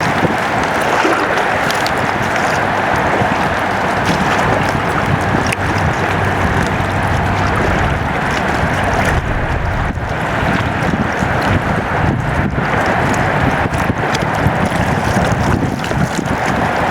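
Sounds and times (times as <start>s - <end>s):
wind and water rushing: 0.0s - 16.9s
wind buffeting microphone: 0.0s - 16.9s
low rumble: 1.6s - 14.0s.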